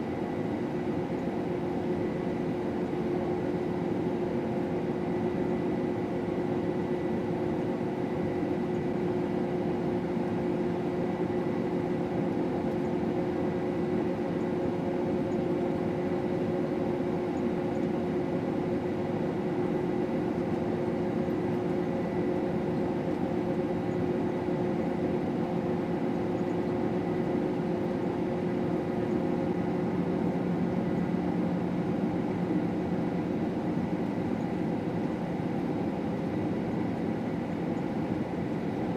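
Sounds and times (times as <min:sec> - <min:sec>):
combine harvester drone: 0:00.0 - 0:38.9.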